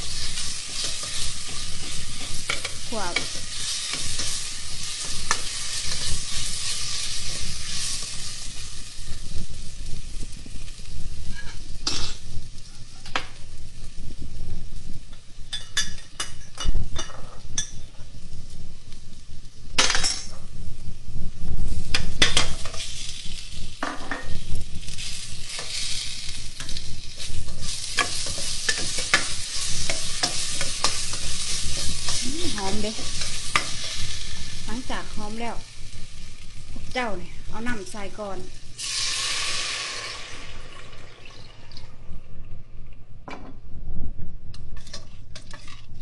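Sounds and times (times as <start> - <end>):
paste sizzling in hot oil: 0.0 - 12.9, 21.7 - 41.6
metal ladle scraping a pot: 44.8 - 46.0.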